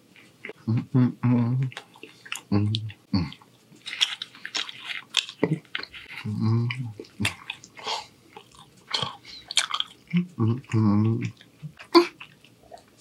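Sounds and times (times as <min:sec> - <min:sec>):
chewing with wet smacks: 0:00.1 - 0:00.7, 0:01.6 - 0:13.0
person humming: 0:00.6 - 0:01.7, 0:02.5 - 0:03.4, 0:06.2 - 0:07.4, 0:10.1 - 0:11.3.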